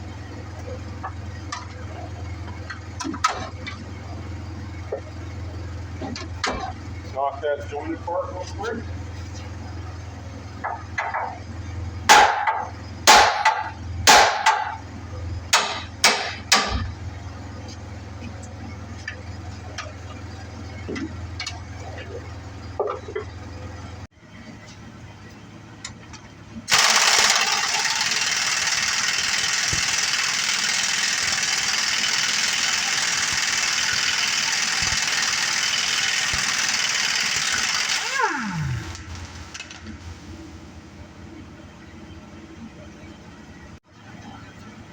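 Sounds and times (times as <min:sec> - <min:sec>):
hammer striking metal: 0:12.1 - 0:14.8, 0:15.5 - 0:16.9
power tool running and winding down: 0:26.7 - 0:39.7.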